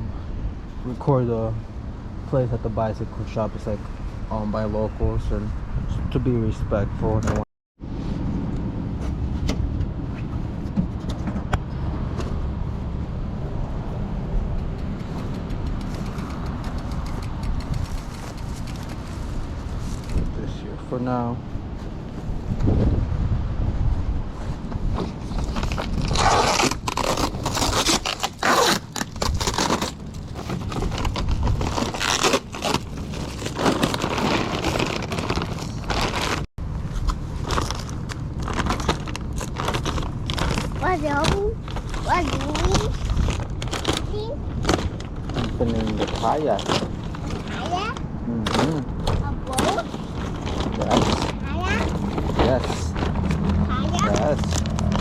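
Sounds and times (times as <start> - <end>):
car road rumble: 7.0 - 55.0
packaging scraping crinkling tearing: 25.4 - 36.5, 37.4 - 48.8, 49.5 - 55.0.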